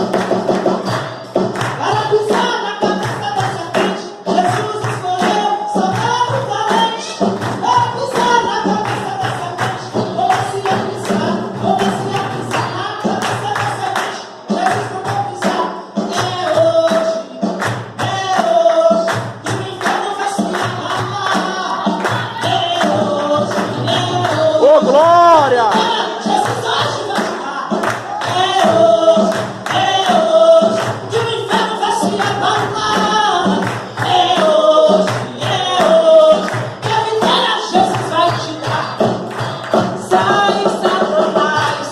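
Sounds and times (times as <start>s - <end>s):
fast tambourine beats: 0.0s - 41.9s
person singing lively melody: 21.2s - 27.3s.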